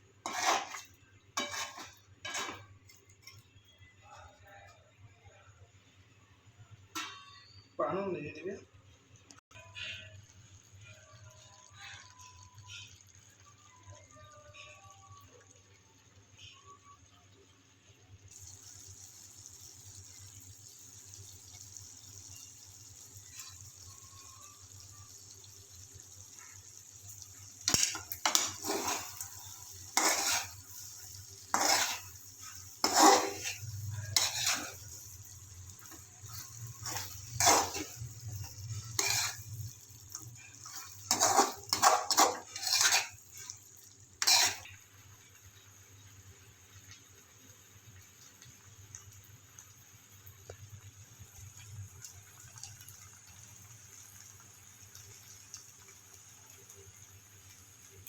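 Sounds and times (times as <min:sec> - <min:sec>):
chicken sizzling: 0:00.0 - 0:05.4, 0:06.2 - 0:58.0
spatula scraping metal pan: 0:00.2 - 0:03.4, 0:27.5 - 0:43.6, 0:44.2 - 0:44.7.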